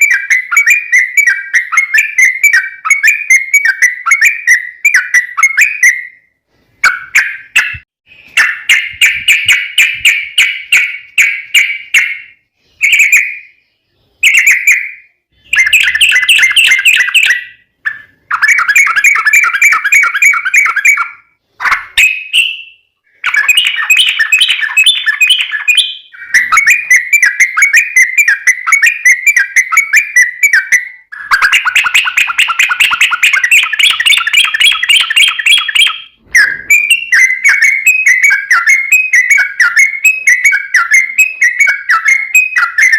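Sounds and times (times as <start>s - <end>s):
bird chattering trills: 23.1s - 42.9s.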